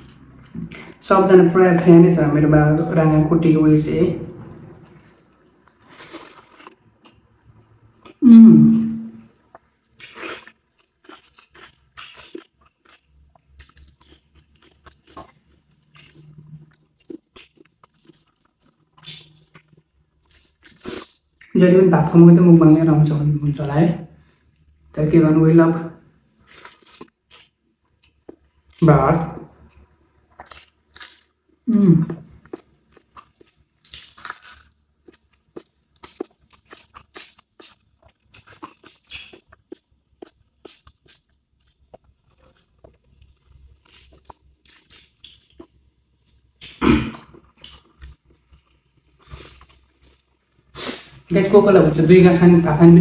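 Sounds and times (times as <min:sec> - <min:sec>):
person crunching and chewing: 0:04.6 - 0:07.2, 0:09.5 - 0:21.5, 0:26.4 - 0:28.8, 0:29.6 - 0:51.3
short voiced sound: 0:08.2 - 0:09.2.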